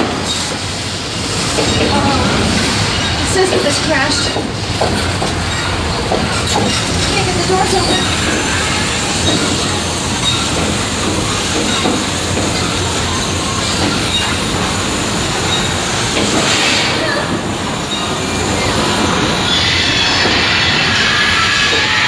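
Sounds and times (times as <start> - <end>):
train wheels screeching: 0.0 - 22.0
bright rushing noise: 7.5 - 22.0.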